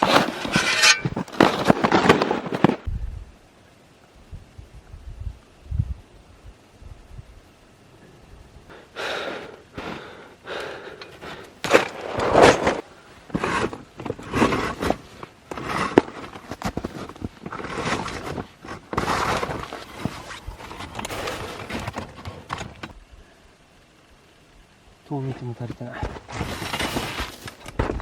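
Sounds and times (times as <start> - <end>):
snow crunching and scraping: 0.0 - 2.9, 9.0 - 22.9, 25.2 - 28.0.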